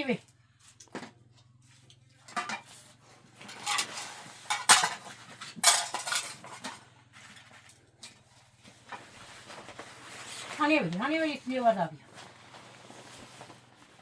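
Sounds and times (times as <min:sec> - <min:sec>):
hard objects clattering: 0:02.2 - 0:09.8.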